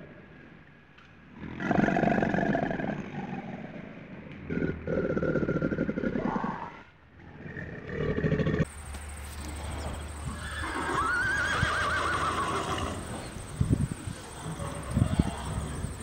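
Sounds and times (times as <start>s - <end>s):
horse whinnying: 10.3s - 13.3s.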